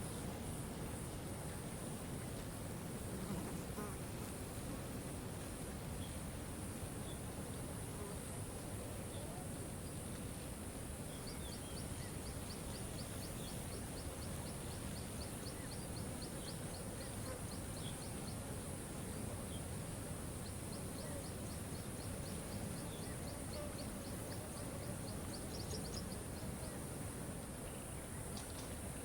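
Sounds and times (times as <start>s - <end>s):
faint bird chirps: 20.4s - 26.9s.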